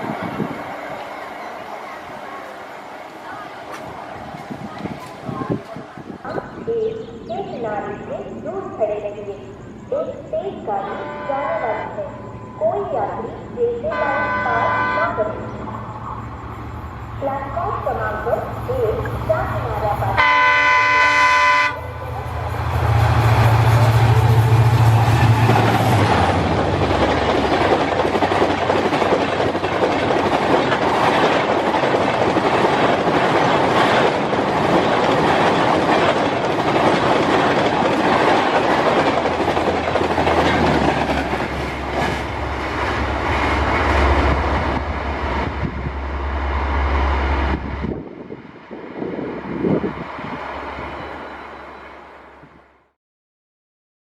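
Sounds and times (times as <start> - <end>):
train rushing past: 0.0 - 52.8
wheels clattering over rail joints: 25.2 - 45.6.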